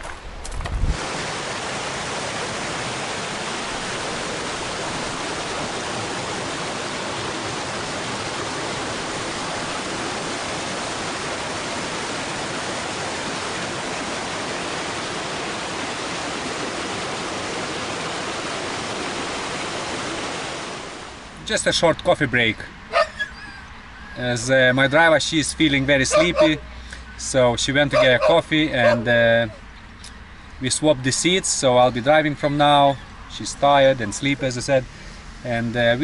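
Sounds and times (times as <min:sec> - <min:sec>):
waterfall rushing: 0:00.9 - 0:21.4, 0:25.9 - 0:26.7.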